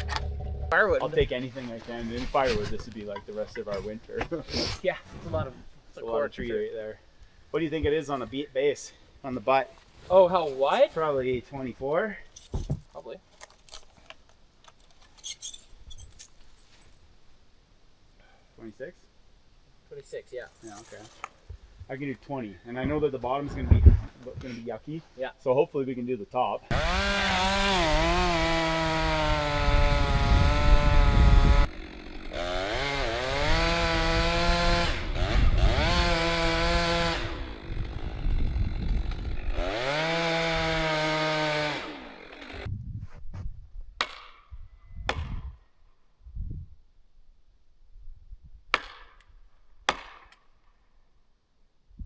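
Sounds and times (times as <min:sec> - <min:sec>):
chainsaw cutting wood: 0:26.7 - 0:42.7.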